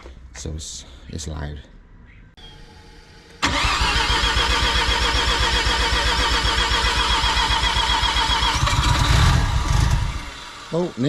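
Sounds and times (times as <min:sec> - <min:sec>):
starter motor cranking engine: 0:03.4 - 0:11.0.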